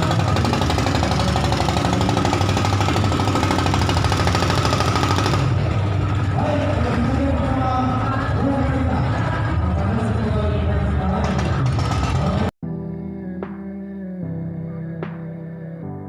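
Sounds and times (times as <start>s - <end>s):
motorboat engine knocking: 0.0s - 7.5s, 11.2s - 12.5s.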